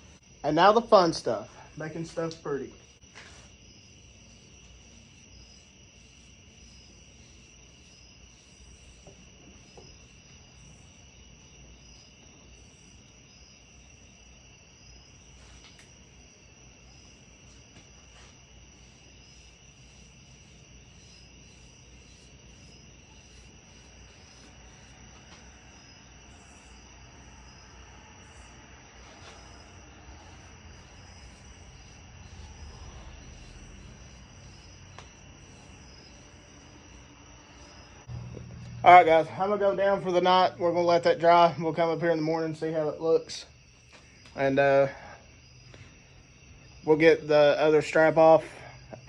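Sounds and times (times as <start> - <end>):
crickets chirping: 0.0 - 49.0
low hum: 18.8 - 40.7.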